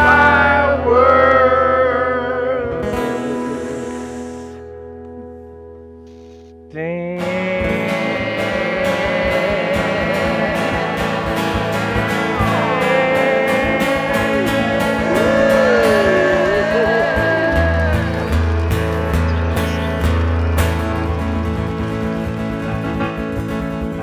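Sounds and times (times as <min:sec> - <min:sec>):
gliding lead guitar line: 0:00.0 - 0:24.0
strummed acoustic guitars: 0:00.0 - 0:24.0
country band playing: 0:07.2 - 0:24.0.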